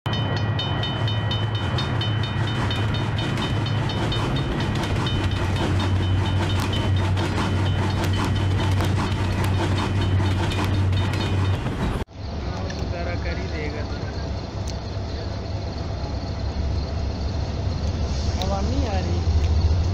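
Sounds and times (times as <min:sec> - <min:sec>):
level-crossing bell ringing: 0:00.1 - 0:08.5
wheels clicking over rail joints: 0:00.1 - 0:15.4
train rumble: 0:00.1 - 0:19.9.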